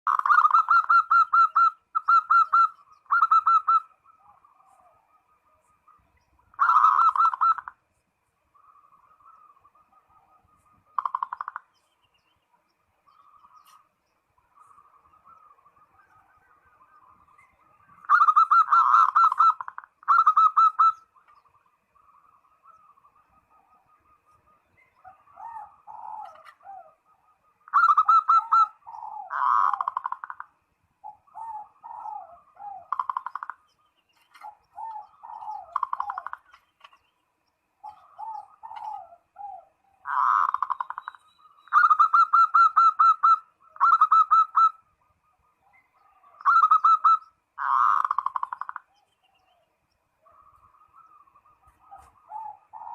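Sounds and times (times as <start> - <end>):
dove rolling call: 0.1 - 7.8, 8.6 - 11.7, 13.1 - 37.0, 37.8 - 49.6, 50.2 - 52.9
soft falling dove coos: 25.0 - 27.1, 31.1 - 33.5, 34.2 - 36.9, 37.8 - 40.9, 50.2 - 52.9.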